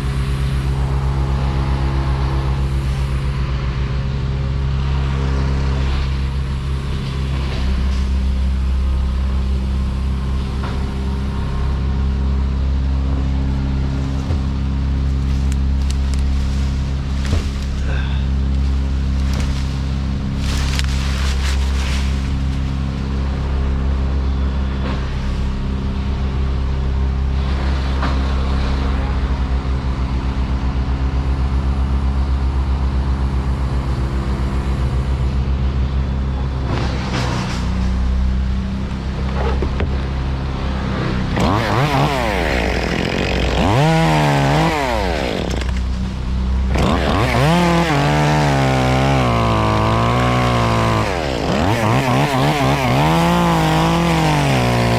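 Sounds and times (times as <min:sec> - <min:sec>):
engine droning: 0:00.0 - 0:54.9
chainsaw revving: 0:41.2 - 0:54.9.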